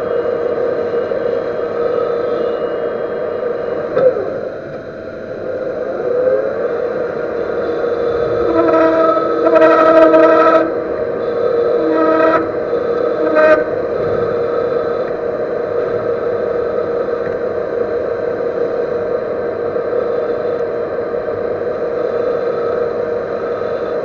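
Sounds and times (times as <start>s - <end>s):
high-pitched squeal: 0.0s - 17.2s
metal lathe cutting: 0.0s - 24.0s.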